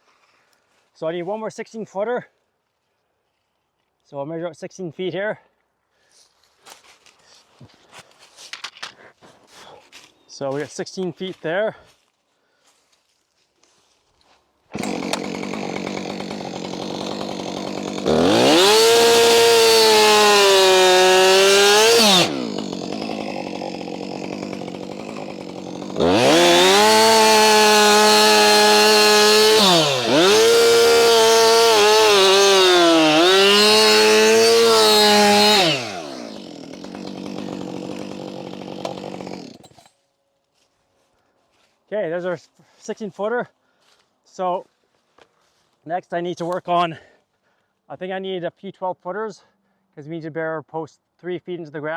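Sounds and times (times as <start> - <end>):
chainsaw idling and revving: 14.7 - 39.9.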